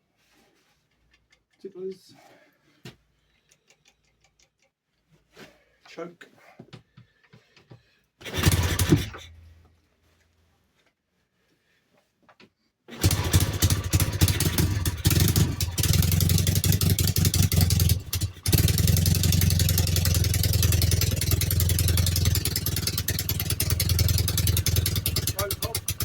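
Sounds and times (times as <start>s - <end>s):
motorcycle engine starting and running: 8.2s - 9.5s, 12.9s - 26.0s.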